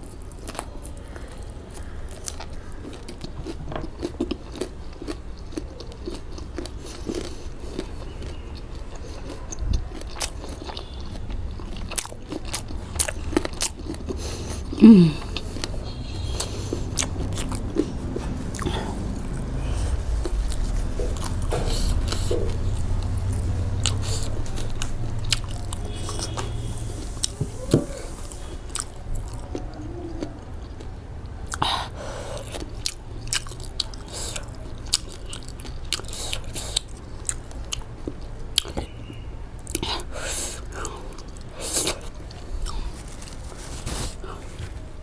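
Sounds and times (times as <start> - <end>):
person chewing crunchy food: 0.0 - 45.0
low rumble: 14.6 - 31.4.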